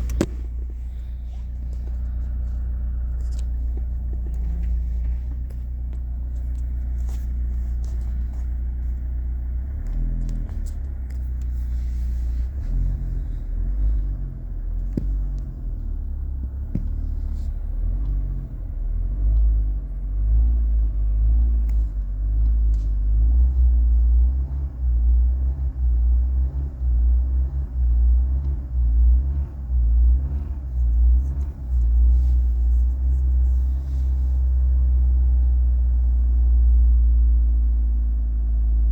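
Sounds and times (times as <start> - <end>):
car engine idling: 0.0 - 38.9
car engine revving blips: 12.4 - 34.0.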